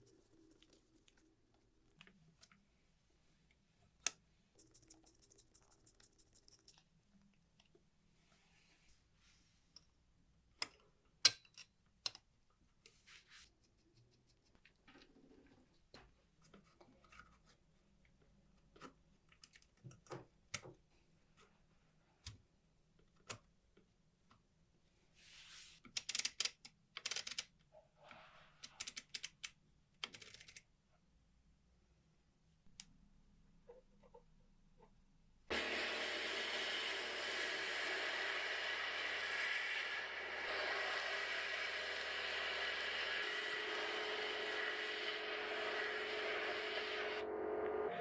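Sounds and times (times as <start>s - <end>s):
small metal parts clicking: 25.9s - 27.5s.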